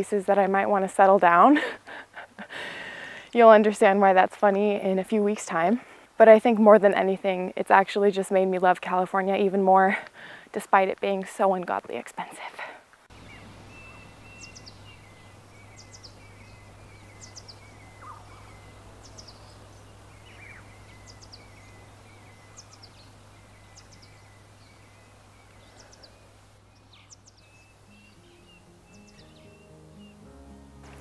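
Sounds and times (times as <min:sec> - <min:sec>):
steady low hum: 0:13.1 - 0:29.9
small bird chirping: 0:13.1 - 0:30.3.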